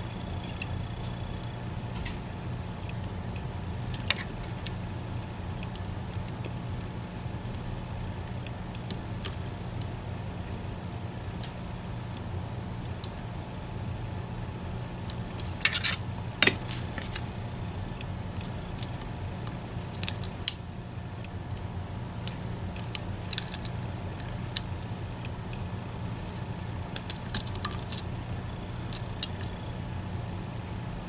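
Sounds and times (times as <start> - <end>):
low steady hum: 0.0 - 31.0
lock pick metallic clicks: 15.1 - 17.3, 21.3 - 24.9.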